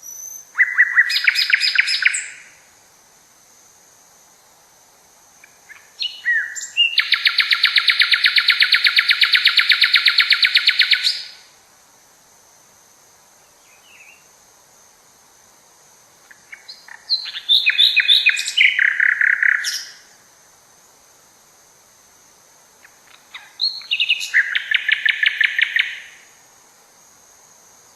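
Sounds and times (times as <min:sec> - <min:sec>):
songbird singing: 0:00.0 - 0:02.8, 0:05.3 - 0:11.6, 0:13.3 - 0:14.5, 0:16.0 - 0:21.0, 0:22.1 - 0:26.4.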